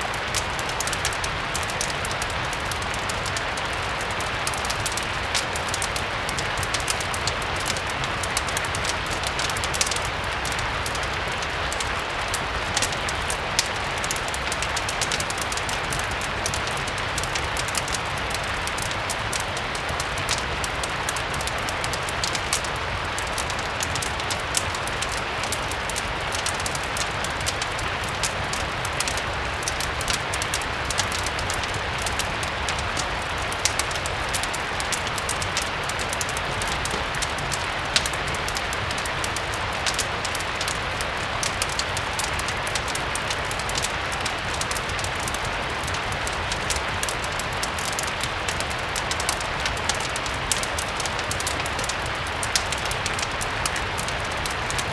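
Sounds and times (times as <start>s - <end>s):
fireplace crackles and pops: 0.0s - 54.9s
steady rain falling: 0.0s - 54.9s.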